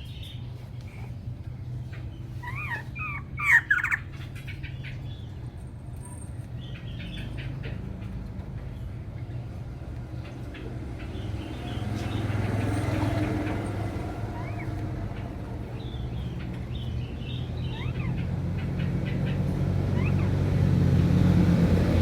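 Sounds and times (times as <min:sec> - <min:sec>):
bird calling: 0:00.0 - 0:05.3, 0:10.5 - 0:20.7.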